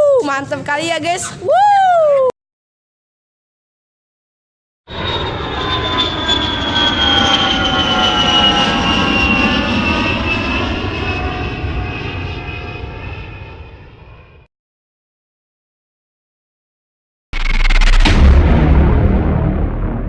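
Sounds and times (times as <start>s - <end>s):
jet aircraft passing by: 4.9s - 14.5s.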